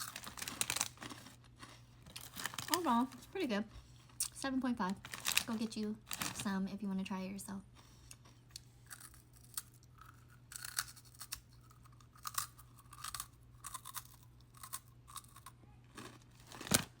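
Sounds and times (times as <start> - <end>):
person chewing crunchy snacks: 0.0 - 2.9, 7.7 - 17.0.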